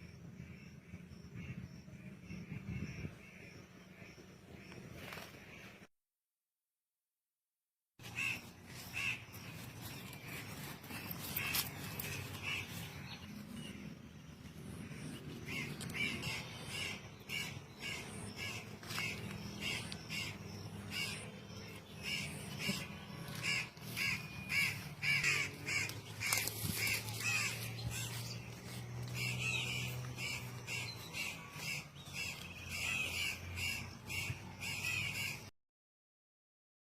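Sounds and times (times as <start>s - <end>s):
bird giving harsh calls: 8.0s - 13.3s, 14.9s - 35.5s.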